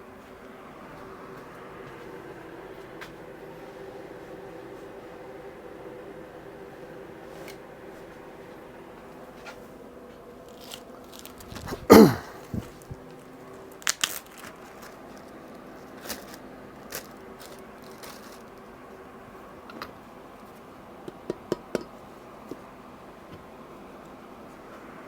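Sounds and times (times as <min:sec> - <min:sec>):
steady low hum: 0:00.0 - 0:25.0
handling clicks and scrapes: 0:10.5 - 0:13.2.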